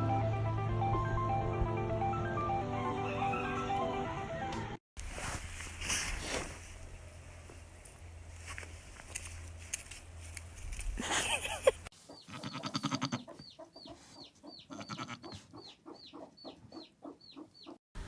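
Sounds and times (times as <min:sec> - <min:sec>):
chickens clucking: 0:11.9 - 0:17.8.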